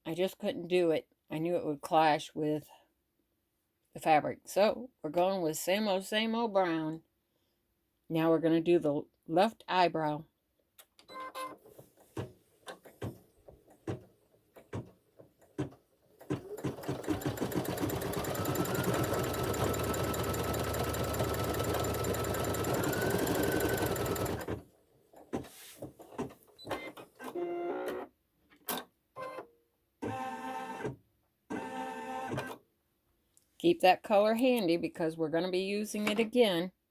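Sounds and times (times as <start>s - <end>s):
embroidery machine stitching: 14.7s - 24.6s.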